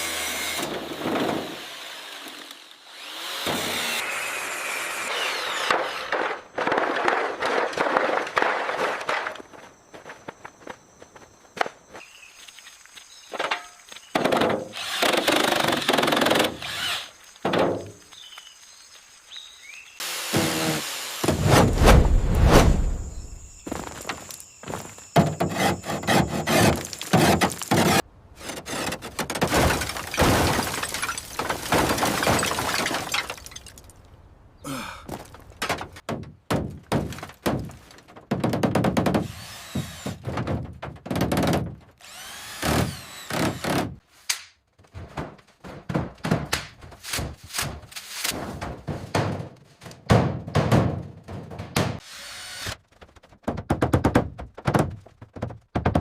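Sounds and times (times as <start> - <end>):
construction thuds and knocks: 17.4 - 17.9, 21.2 - 33.8, 35.0 - 42.0, 44.8 - 52.0, 53.0 - 56.0
things breaking: 21.3 - 28.0, 28.6 - 34.1
tool noise: 23.1 - 29.2.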